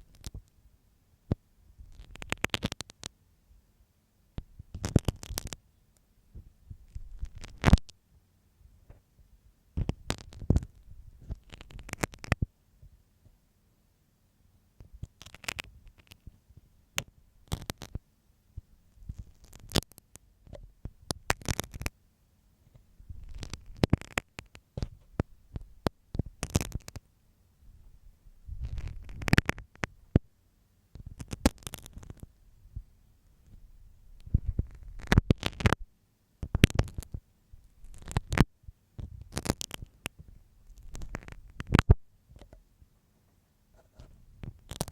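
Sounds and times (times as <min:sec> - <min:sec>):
pin scraping in microphone ear: 0:06.9 - 0:07.9, 0:28.5 - 0:29.9, 0:34.2 - 0:35.8, 0:37.8 - 0:40.0, 0:40.7 - 0:42.6, 0:43.8 - 0:44.9.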